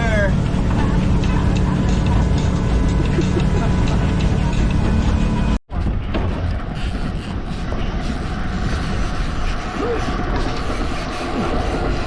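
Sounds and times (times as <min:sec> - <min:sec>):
outboard motor rumbling: 0:00.0 - 0:12.0
water noise: 0:00.0 - 0:12.0
wind: 0:00.0 - 0:12.0.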